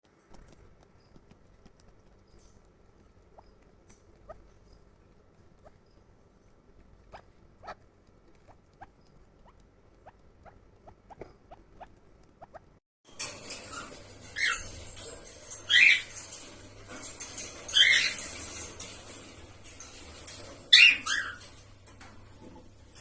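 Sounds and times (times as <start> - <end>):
small animal squeaking: 0.4 - 12.8.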